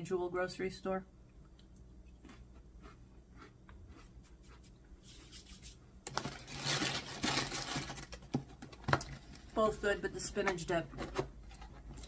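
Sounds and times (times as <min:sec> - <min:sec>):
crackers being chewed: 0:01.3 - 0:04.9.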